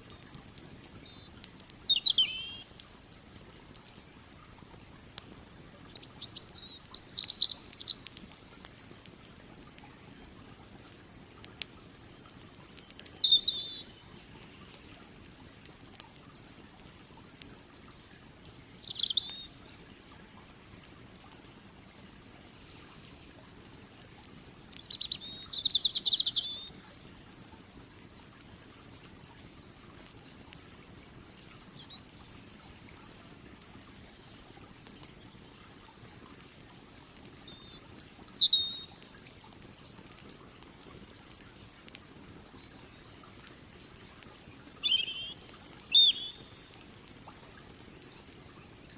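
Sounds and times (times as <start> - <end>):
campfire crackling and popping: 0.0 - 48.9
flowing creek: 0.0 - 48.9
bird chirping: 1.0 - 2.7, 5.9 - 9.1, 12.1 - 14.7, 18.8 - 20.0, 24.8 - 26.9, 37.4 - 38.9, 44.4 - 46.8.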